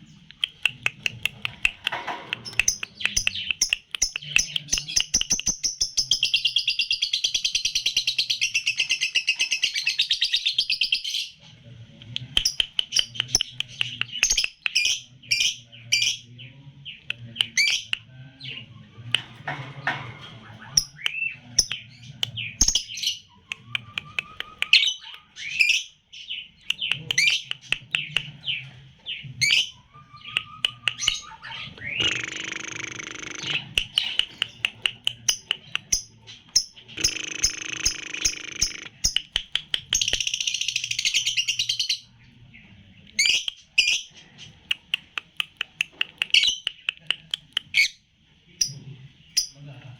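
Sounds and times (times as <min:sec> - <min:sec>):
lovebird trilling and chirping: 0:00.3 - 0:11.2, 0:20.5 - 0:26.0, 0:29.4 - 0:42.1.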